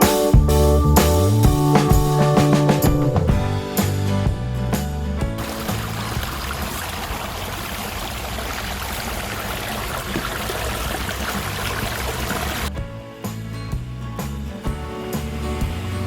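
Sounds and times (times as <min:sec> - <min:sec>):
background music bass line: 0:00.0 - 0:06.6, 0:12.7 - 0:16.0
stream water rushing: 0:05.4 - 0:12.7.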